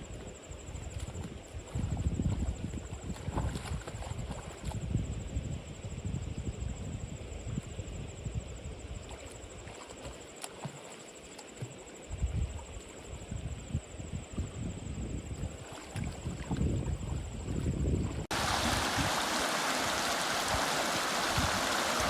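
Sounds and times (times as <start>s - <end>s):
wind buffeting microphone: 0.8s - 8.4s, 13.3s - 22.0s.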